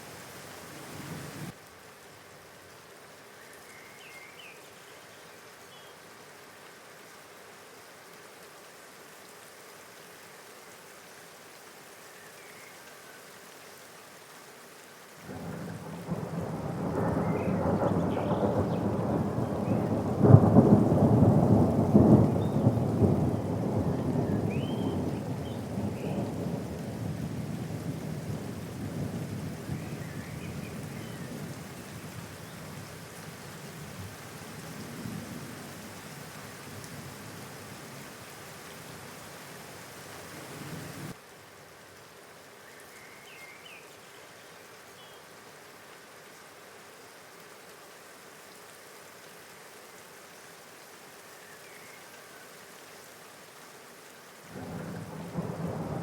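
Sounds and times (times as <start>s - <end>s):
steady rain falling: 0.0s - 56.0s
thunder rumbling: 15.3s - 30.1s, 54.6s - 56.0s.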